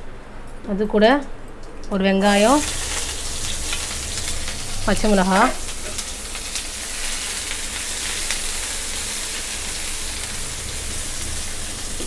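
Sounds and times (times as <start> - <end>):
onion sizzling in hot oil: 2.2 - 12.0.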